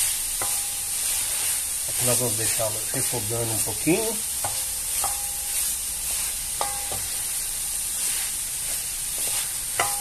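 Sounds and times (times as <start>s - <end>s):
meat and onion sizzling in a pan: 0.0s - 10.0s
wooden spoon knocking pan: 6.6s - 7.1s, 9.2s - 10.0s.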